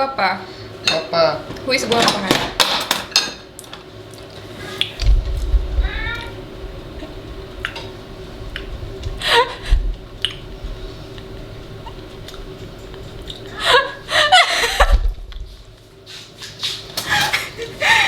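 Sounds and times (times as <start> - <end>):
cat meowing: 5.8 - 6.4.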